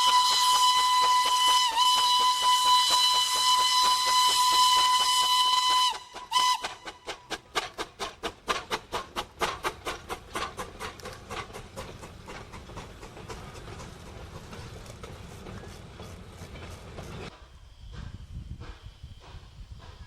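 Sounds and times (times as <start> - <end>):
steam locomotive whistle: 0.0 - 7.4
locomotive exhaust chuffing: 0.0 - 17.3.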